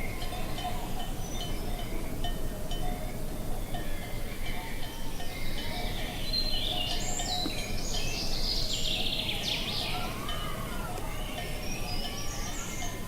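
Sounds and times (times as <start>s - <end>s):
birds chirping and singing: 3.6s - 13.0s.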